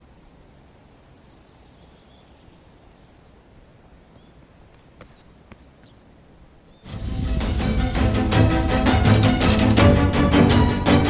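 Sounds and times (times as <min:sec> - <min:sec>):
low steady background noise: 0:00.0 - 0:06.9
small bird chirping: 0:00.6 - 0:06.0.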